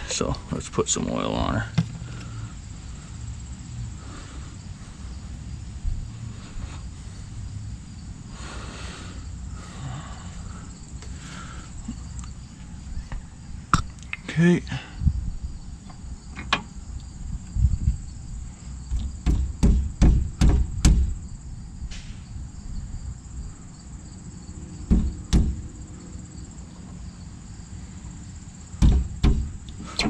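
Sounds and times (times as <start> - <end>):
sharp knocks on metal: 18.9 - 21.2, 24.9 - 25.8, 28.8 - 29.6.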